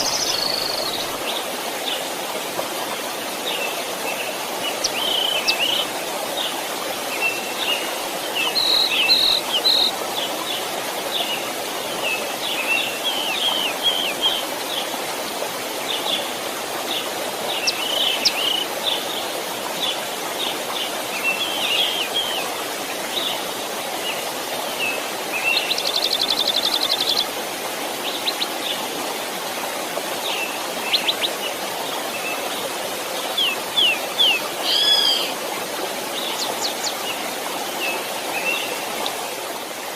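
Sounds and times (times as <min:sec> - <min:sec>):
small birds chirping: 0:00.0 - 0:01.2, 0:04.6 - 0:05.9, 0:17.5 - 0:19.0
stream flowing: 0:00.0 - 0:39.9.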